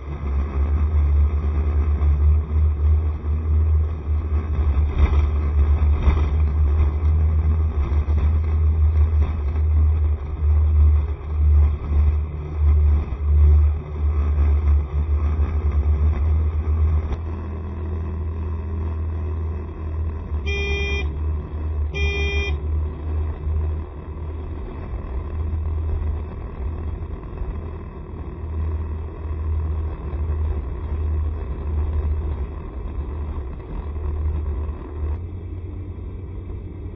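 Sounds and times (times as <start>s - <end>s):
scooter riding rumble: 0.0s - 36.9s
short horn beeps: 20.4s - 21.2s, 21.9s - 22.6s.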